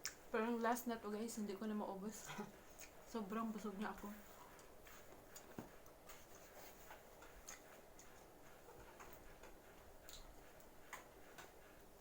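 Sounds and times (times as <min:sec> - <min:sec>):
mouth clicks and smacks chewing: 0:00.0 - 0:00.3, 0:02.7 - 0:03.1, 0:04.6 - 0:11.6.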